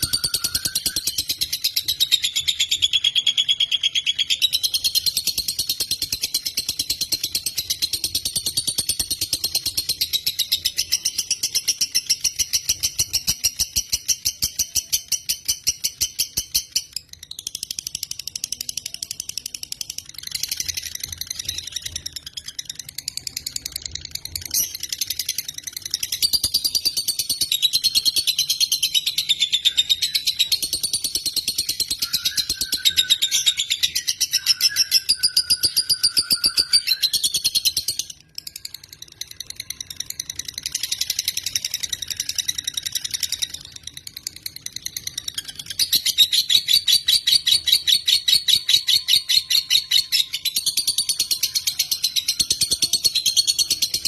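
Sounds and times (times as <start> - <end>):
bird chattering trill: 24.4 - 54.0.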